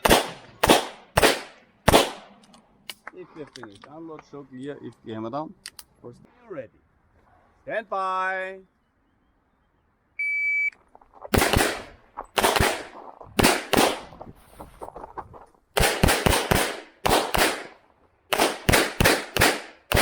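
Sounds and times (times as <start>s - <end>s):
pistol shots: 0.0s - 2.4s, 11.3s - 14.1s, 15.8s - 20.0s.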